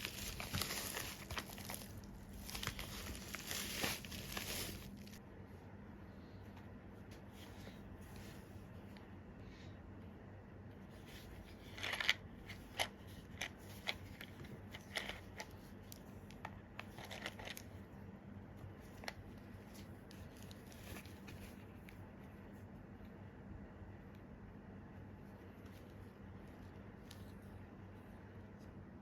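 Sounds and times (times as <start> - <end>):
packaging clicking and crinkling: 0.0 - 5.2.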